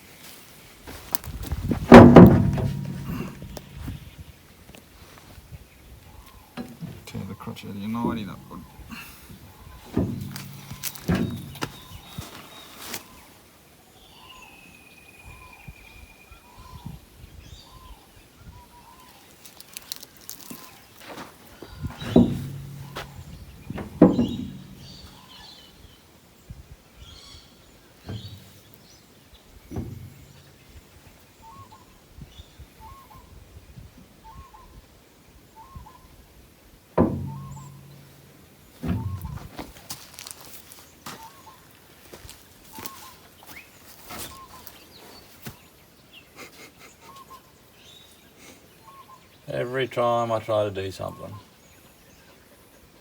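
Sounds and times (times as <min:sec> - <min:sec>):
heavy metal clunks: 0:01.8 - 0:03.8, 0:06.6 - 0:07.3, 0:08.0 - 0:09.0, 0:09.7 - 0:12.2, 0:21.8 - 0:25.4, 0:28.0 - 0:28.8, 0:29.6 - 0:30.6, 0:37.0 - 0:39.8
sharp clicks and knocks: 0:01.9 - 0:03.7, 0:09.9 - 0:11.8, 0:22.0 - 0:25.2, 0:29.7 - 0:30.4, 0:37.0 - 0:39.7
birds chirping: 0:05.7 - 0:26.0, 0:37.0 - 0:53.0.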